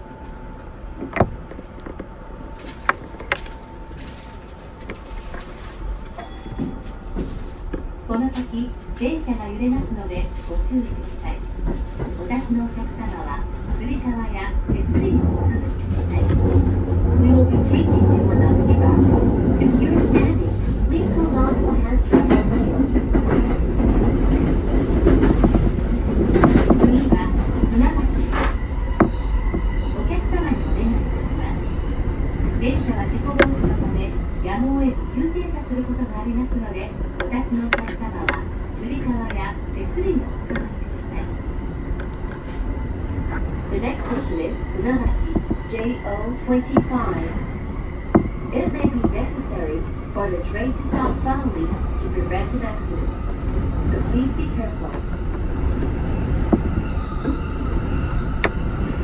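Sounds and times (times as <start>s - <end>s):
electric train rumble and hum: 0.0s - 59.0s
sharp clicks from train: 32.8s - 33.8s, 58.4s - 58.6s.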